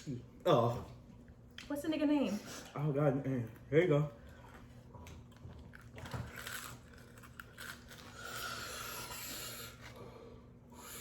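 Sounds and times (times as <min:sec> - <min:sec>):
crunching and chewing food: 0:03.5 - 0:10.1.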